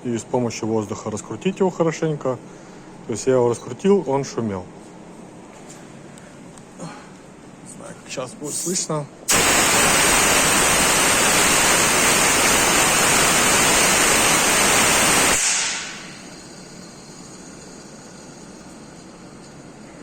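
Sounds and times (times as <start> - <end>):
compressed air gun hissing: 9.3 - 18.3.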